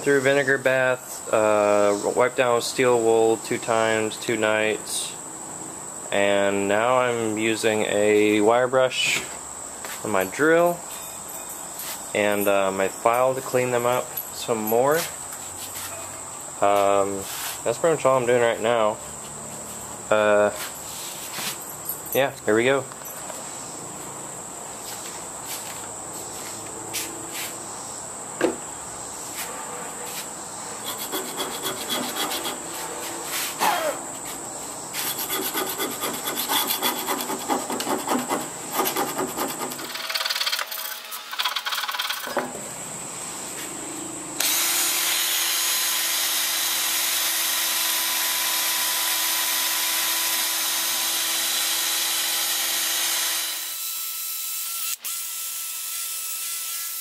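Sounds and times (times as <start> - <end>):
wire brush drill on steel: 30.8 - 32.6, 38.8 - 42.4, 44.4 - 57.0
hand file rasping on metal: 30.8 - 33.6, 35.0 - 40.0.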